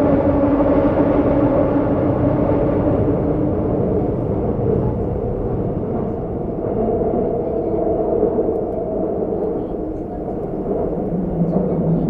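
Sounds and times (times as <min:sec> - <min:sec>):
train wheels rumbling on track: 0:00.0 - 0:12.0
traction motors humming: 0:08.6 - 0:12.0.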